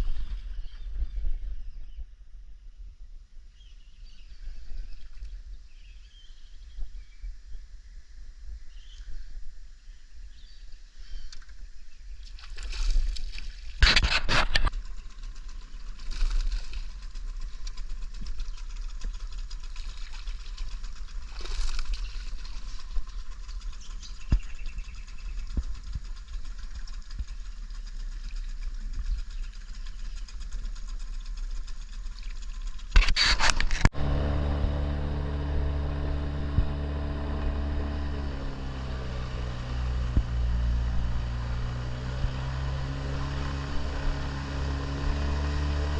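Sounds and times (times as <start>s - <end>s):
outboard motor running: 11.1s - 45.9s
knocks and scrapes: 12.6s - 14.9s, 32.3s - 34.2s.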